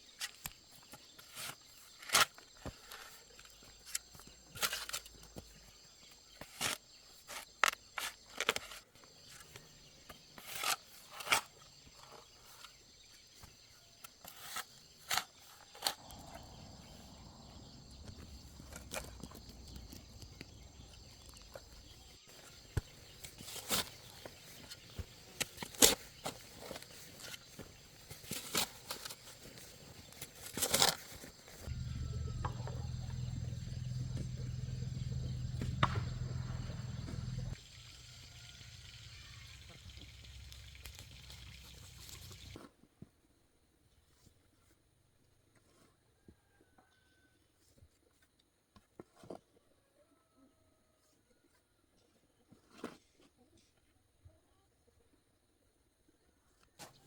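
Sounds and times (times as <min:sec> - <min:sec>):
faint high insect chorus: 0:00.0 - 0:42.6
sharp knocks and clicks: 0:31.8 - 0:37.6.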